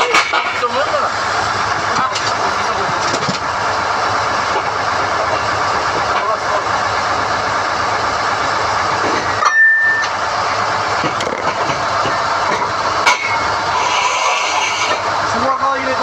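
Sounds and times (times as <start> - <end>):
drilling rig running: 0.0 - 16.0
metal rods clanking: 11.0 - 15.1.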